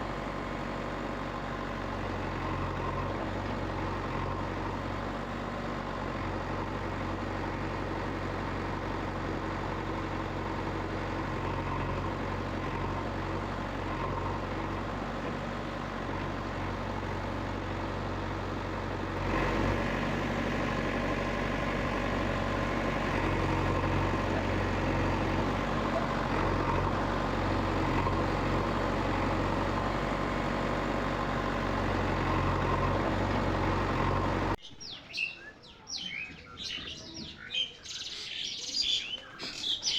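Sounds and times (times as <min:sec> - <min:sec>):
engine-like running hum: 0:00.0 - 0:39.9.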